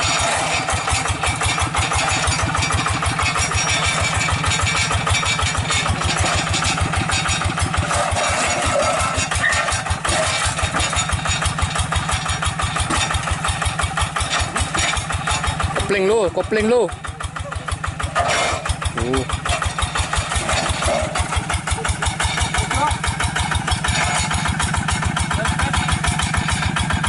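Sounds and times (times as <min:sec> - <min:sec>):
diesel engine chugging: 0:00.0 - 0:27.0.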